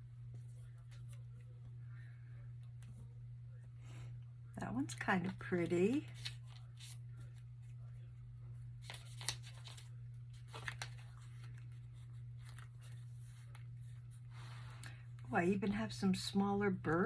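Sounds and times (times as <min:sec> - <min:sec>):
low electrical hum: 0:00.0 - 0:17.0
paper pages turning: 0:05.3 - 0:07.5, 0:08.8 - 0:14.2.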